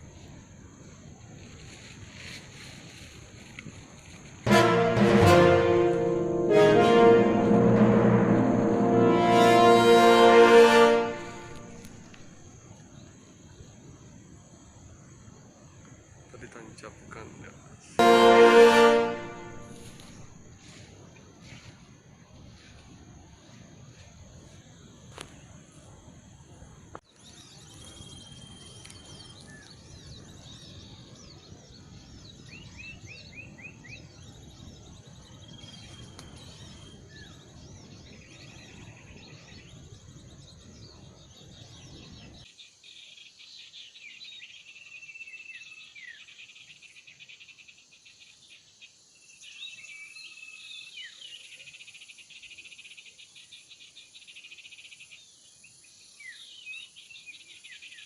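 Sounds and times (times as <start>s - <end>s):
small birds chirping and twittering: 27.1s - 58.0s.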